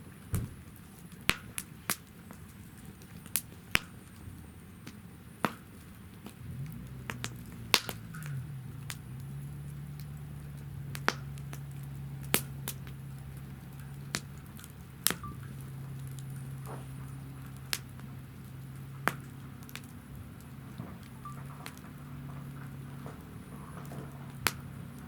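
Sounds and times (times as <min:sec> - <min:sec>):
fire popping: 0:00.0 - 0:25.0
firewood crackling: 0:00.0 - 0:25.0
low hum: 0:06.3 - 0:25.0.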